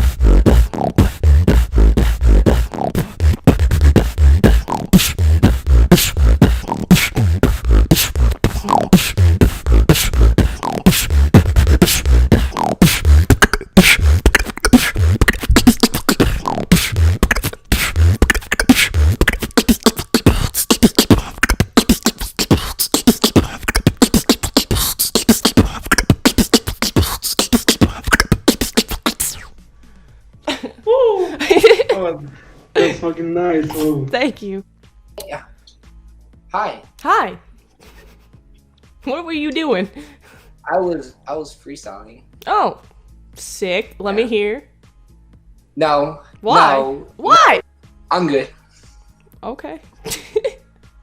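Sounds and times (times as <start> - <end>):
beatboxing: 0.0 - 29.6, 33.6 - 34.0.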